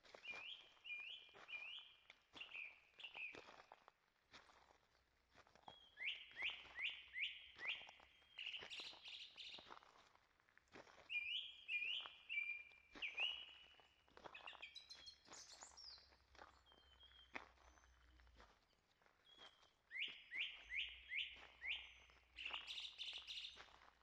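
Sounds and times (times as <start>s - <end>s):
quiet footsteps on trail: 0.0s - 24.0s
songbird singing: 0.2s - 3.4s, 5.7s - 9.6s, 11.1s - 13.8s, 14.4s - 17.3s, 19.3s - 23.6s.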